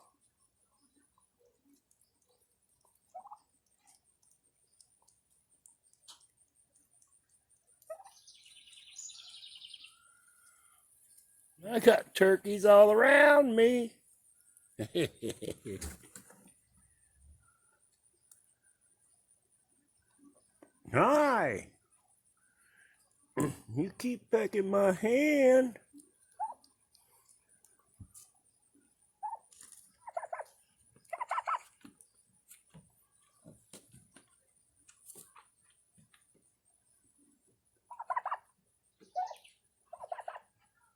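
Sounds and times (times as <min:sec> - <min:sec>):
turkeys pecking clicks: 0:00.1 - 0:08.4, 0:15.4 - 0:19.0, 0:25.8 - 0:40.7
turkey cluck: 0:03.0 - 0:03.5, 0:07.8 - 0:08.2, 0:26.3 - 0:26.8, 0:29.2 - 0:31.7, 0:37.9 - 0:40.6.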